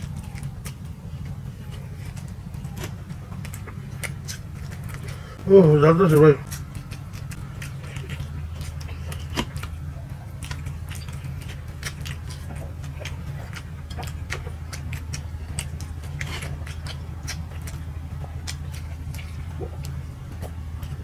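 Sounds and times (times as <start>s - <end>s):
wet mouth clicks chewing: 0.0s - 5.2s, 6.4s - 21.0s
steady low hum: 0.0s - 21.0s.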